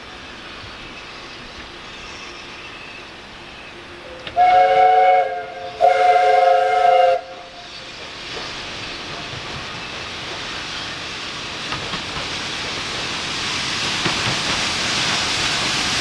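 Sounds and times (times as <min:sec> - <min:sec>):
hiss and noise of train: 0:00.0 - 0:16.0
steam locomotive whistle blasts: 0:04.0 - 0:07.7.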